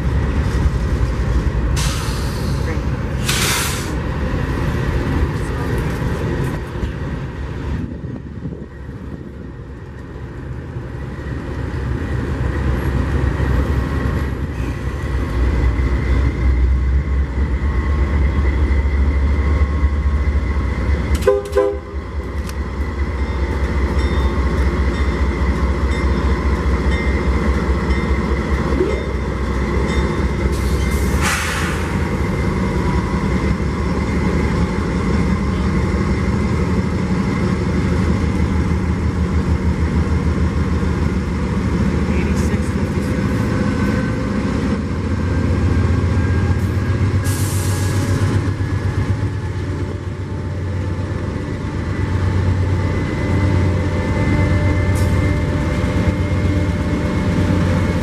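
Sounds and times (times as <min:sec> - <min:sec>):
diesel locomotive rumble: 0:00.0 - 0:58.0
brief hiss: 0:03.2 - 0:04.0, 0:31.2 - 0:32.0.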